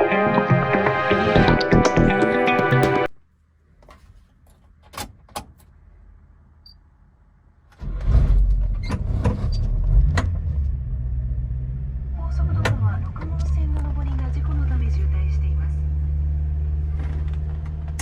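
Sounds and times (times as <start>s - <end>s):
truck engine running: 11.6s - 18.0s.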